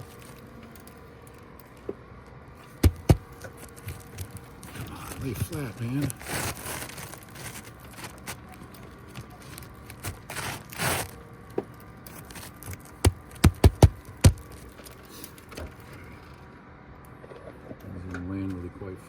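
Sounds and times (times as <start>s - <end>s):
scrape of asphalt shingle: 2.6s - 11.3s, 12.0s - 15.5s.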